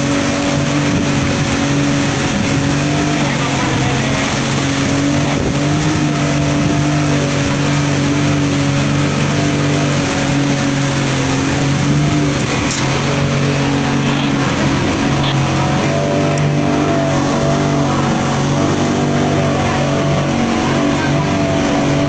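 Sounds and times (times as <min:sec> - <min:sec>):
low motor hum: 0:00.0 - 0:22.0
rain and wind rushing: 0:00.0 - 0:22.0.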